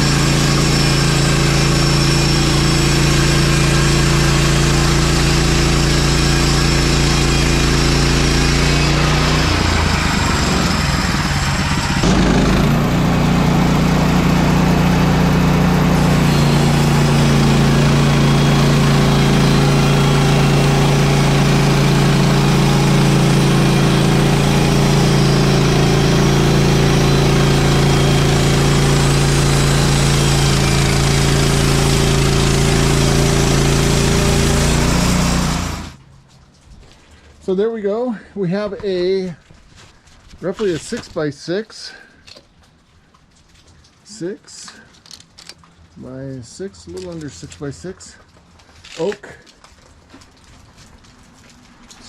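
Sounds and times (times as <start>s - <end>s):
gasoline engine running: 0.0s - 36.2s.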